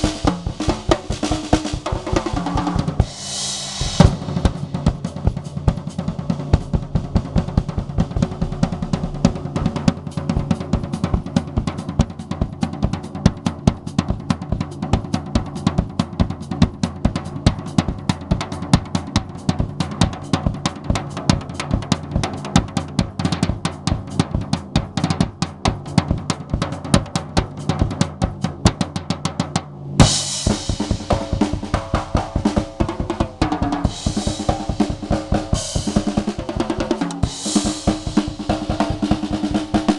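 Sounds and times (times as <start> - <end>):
drum kit solo: 0.0 - 39.9
cymbal crash: 2.4 - 7.0, 29.9 - 32.8.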